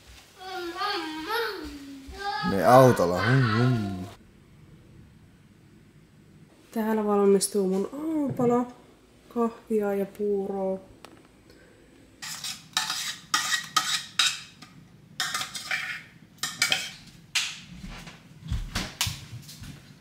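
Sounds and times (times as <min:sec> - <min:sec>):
metal spoon scraping a pot: 0:12.2 - 0:17.0.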